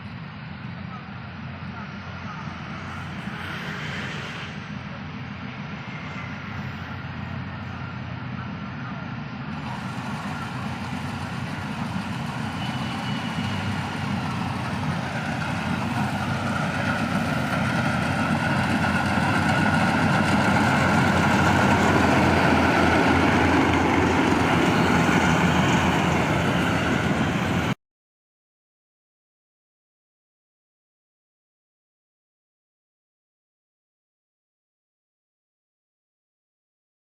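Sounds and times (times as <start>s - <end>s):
combine harvester humming: 4.5s - 27.8s.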